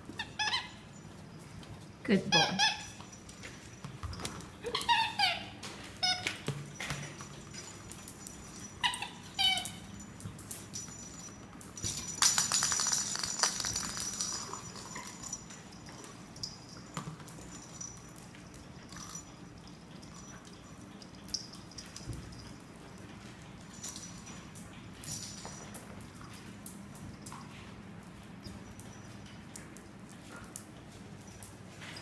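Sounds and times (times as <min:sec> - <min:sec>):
dog squeaks: 0:00.1 - 0:00.8, 0:02.3 - 0:03.0, 0:04.5 - 0:06.4, 0:08.7 - 0:09.9.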